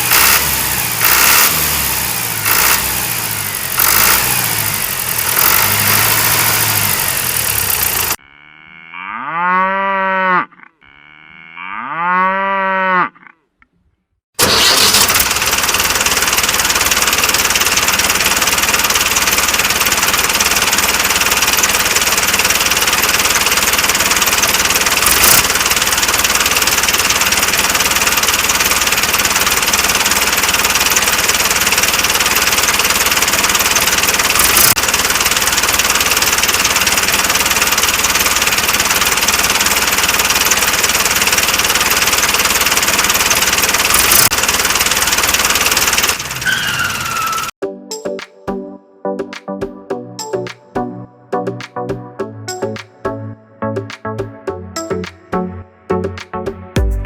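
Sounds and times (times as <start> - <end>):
tractor engine running: 0.0 - 8.2, 14.4 - 47.6, 56.0 - 57.0.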